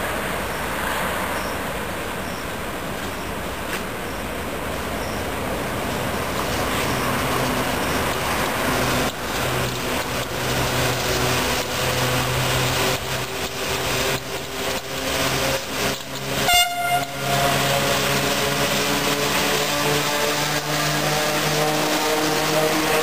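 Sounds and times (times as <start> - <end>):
wheels rumbling on rails: 0.0 - 23.0
locomotive electric hum: 5.2 - 23.0
train horn toot: 16.4 - 17.9, 19.1 - 23.0.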